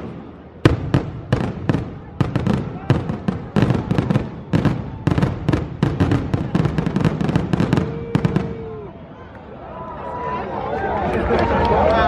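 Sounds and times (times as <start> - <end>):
fireworks bursting: 0.0 - 8.7.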